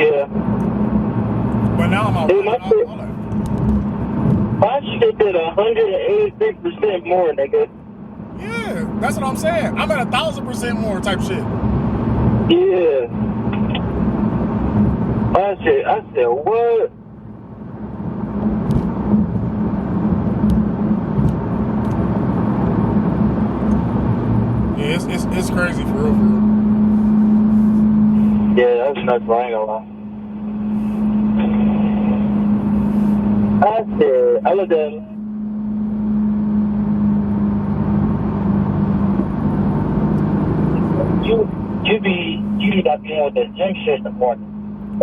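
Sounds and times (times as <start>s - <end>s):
car engine and road noise: 0.0s - 45.0s
car engine drone: 0.4s - 4.7s, 7.8s - 12.5s, 19.6s - 28.5s.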